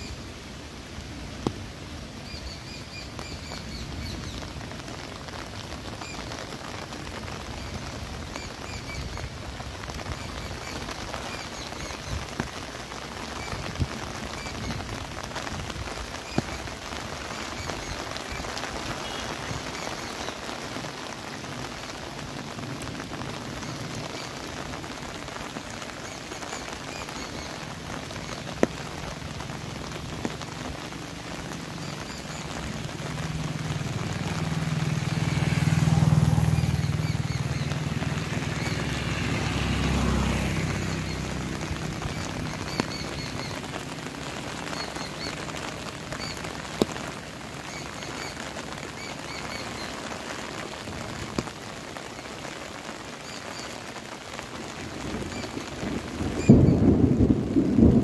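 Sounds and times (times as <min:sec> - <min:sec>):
rain on foliage: 0:00.0 - 0:58.0
rolling thunder: 0:55.9 - 0:58.0.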